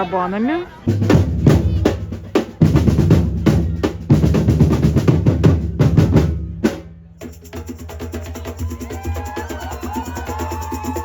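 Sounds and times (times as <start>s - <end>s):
drum band playing fast beat: 0.9s - 11.0s.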